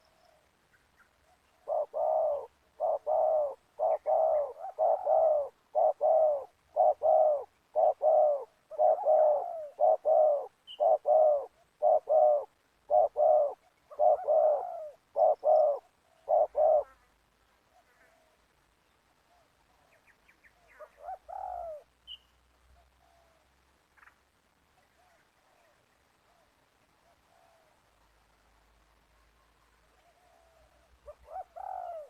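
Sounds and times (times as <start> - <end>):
doves cooing: 1.2 - 17.0, 20.7 - 21.9, 29.9 - 32.0.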